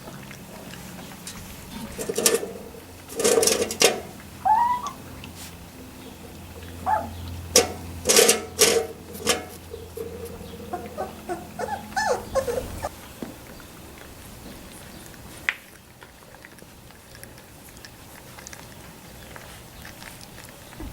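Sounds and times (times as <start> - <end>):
puppies whimpering: 4.1 - 8.0, 9.6 - 13.0
scuffling and rustling: 5.0 - 7.0.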